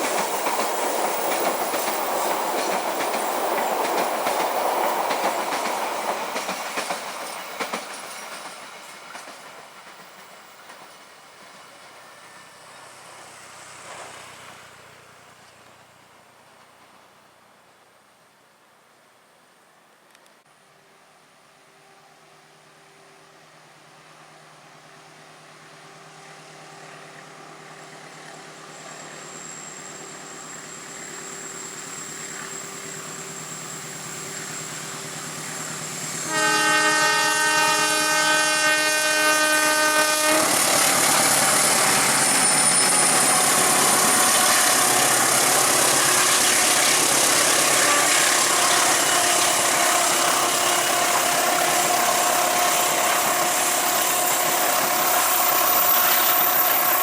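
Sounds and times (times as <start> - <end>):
train rumble and wheel noise: 0.0 - 17.8, 23.1 - 57.0
locomotive horn chord: 36.2 - 54.6.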